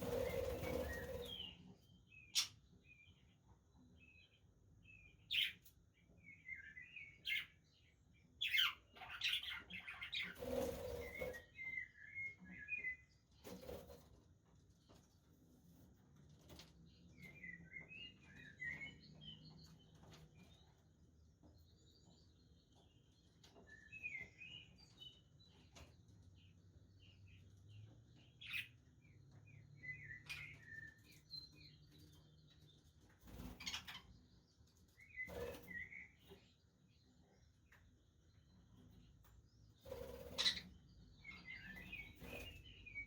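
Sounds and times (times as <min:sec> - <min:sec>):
budgerigars chirping and warbling: 0:00.0 - 0:01.6, 0:02.2 - 0:02.6, 0:05.3 - 0:05.6, 0:08.4 - 0:12.5, 0:28.2 - 0:28.8, 0:33.2 - 0:34.4, 0:39.8 - 0:43.0.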